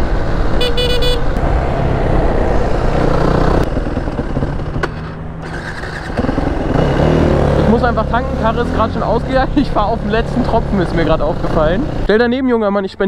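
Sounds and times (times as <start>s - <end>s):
high-pitched toot: 0.6s - 1.3s
motorcycle engine running: 0.6s - 12.1s.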